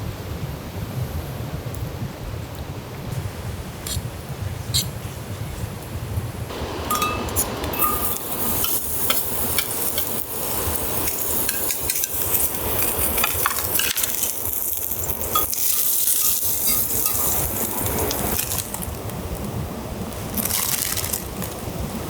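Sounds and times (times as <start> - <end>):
wood fire crackling: 1.3 - 22.0
food sizzling in a pan: 6.5 - 22.0.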